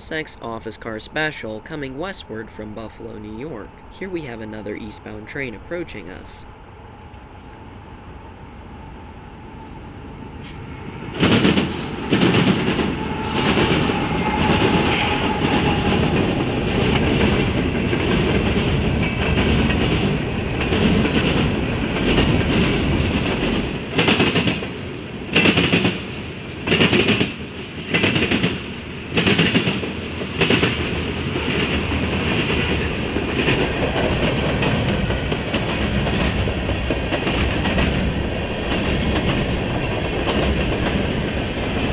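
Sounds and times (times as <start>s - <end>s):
train passing: 0.0s - 41.9s
wheels clanking over crossing: 31.5s - 41.9s.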